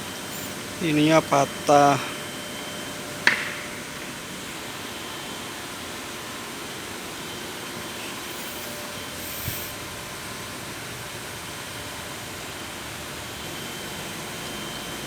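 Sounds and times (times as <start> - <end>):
steady background hiss: 0.0 - 4.7.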